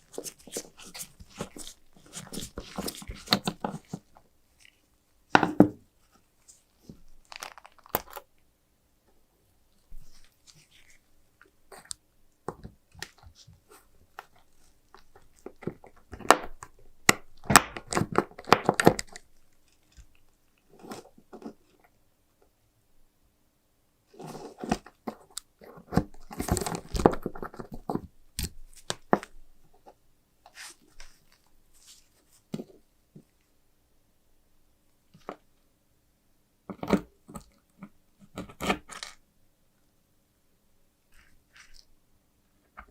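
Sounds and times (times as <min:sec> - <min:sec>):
scratchy rubbing: 0:00.0 - 0:04.9.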